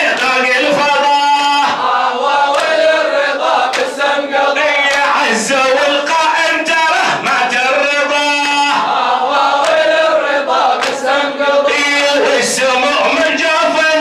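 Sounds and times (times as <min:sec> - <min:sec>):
men chanting in unison: 0:00.0 - 0:14.0
chest-beating slaps: 0:02.6 - 0:02.8, 0:10.8 - 0:11.1.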